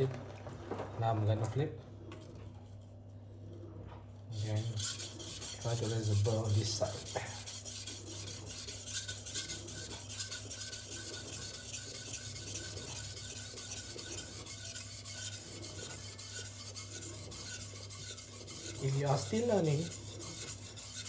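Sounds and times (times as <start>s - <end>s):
blade scraping on whetstone: 4.3s - 21.0s.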